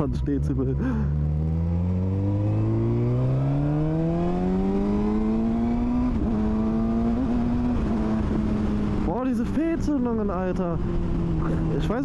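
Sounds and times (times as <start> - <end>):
loud motorcycle engine revving: 0.8 - 9.2.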